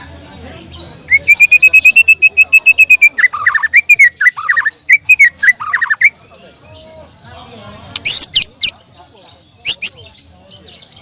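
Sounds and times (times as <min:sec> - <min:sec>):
bird singing whistled phrases: 0:01.1 - 0:06.2.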